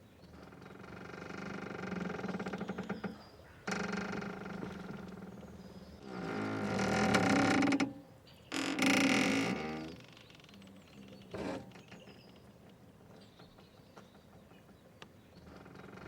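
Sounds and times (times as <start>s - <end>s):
boat rope creaking: 0.3s - 12.6s.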